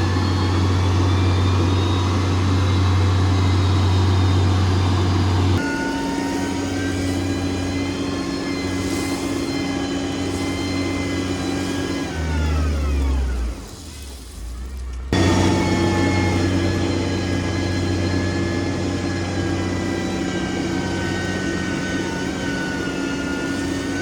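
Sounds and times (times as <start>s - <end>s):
engine with higher hum: 0.0s - 24.0s
heavy diesel engines running: 0.0s - 24.0s.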